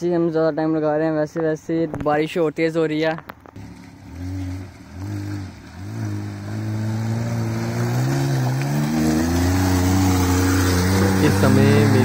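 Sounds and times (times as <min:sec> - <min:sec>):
small car engine revving: 0:03.5 - 0:12.0.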